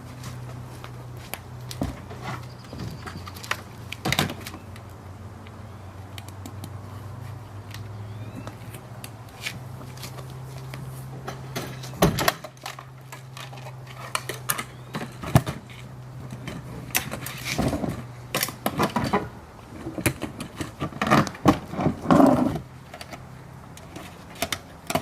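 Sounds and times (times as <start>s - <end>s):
boat parts clicking and clattering: 0.3s - 4.9s, 9.4s - 25.0s.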